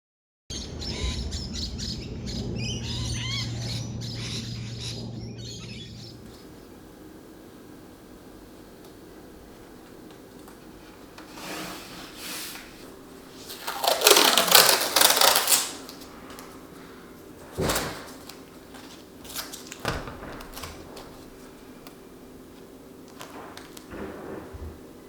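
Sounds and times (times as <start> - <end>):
objects knocking down: 13.4 - 15.9, 19.3 - 21.7, 23.2 - 25.0.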